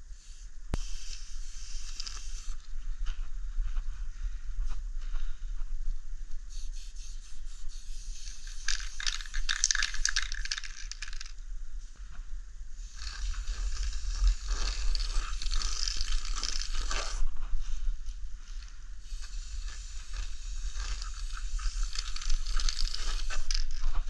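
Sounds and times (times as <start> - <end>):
spray paint can hissing: 0.1 - 2.6, 6.5 - 11.3, 12.8 - 17.2, 19.0 - 24.0.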